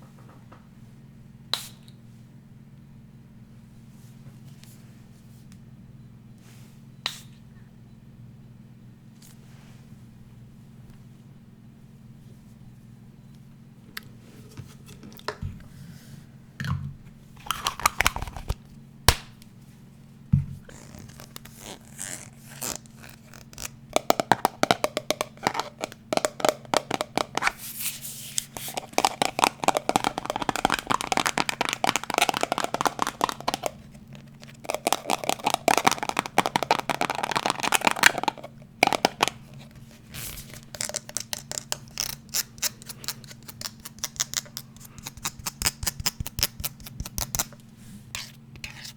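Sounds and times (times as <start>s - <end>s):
scratching: 20.7s - 47.5s
fast tapping: 23.9s - 27.5s, 28.5s - 39.4s.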